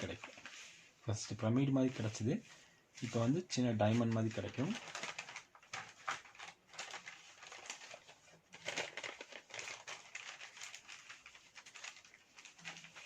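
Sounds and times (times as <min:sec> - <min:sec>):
paper being folded and creased: 0:00.0 - 0:13.0.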